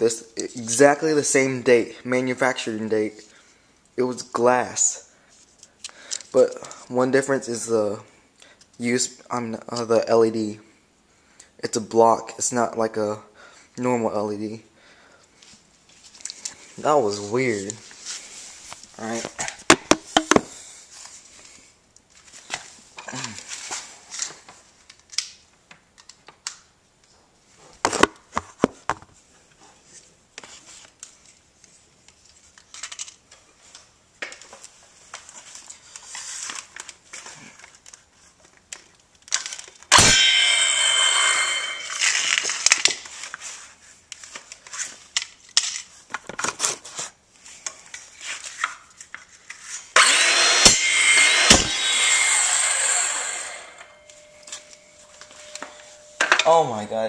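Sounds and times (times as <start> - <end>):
circular saw cutting metal: 39.9 - 42.6, 50.0 - 56.6.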